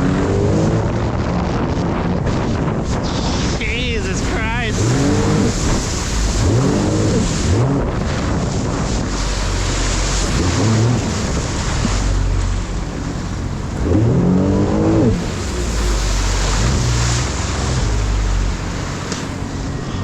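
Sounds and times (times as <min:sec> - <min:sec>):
jet ski engine revving: 0:00.0 - 0:20.0
wind: 0:00.0 - 0:20.0
water rushing: 0:02.1 - 0:20.0.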